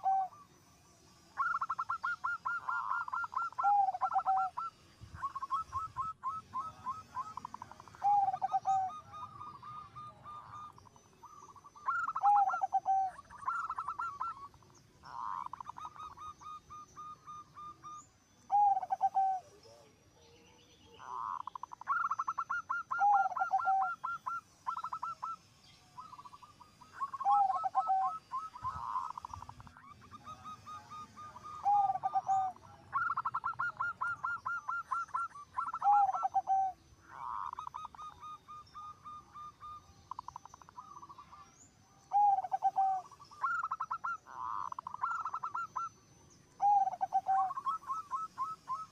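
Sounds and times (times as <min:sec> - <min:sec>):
dove cooing: 0:00.0 - 0:00.6, 0:01.3 - 0:20.0, 0:20.9 - 0:41.4, 0:42.1 - 0:48.9.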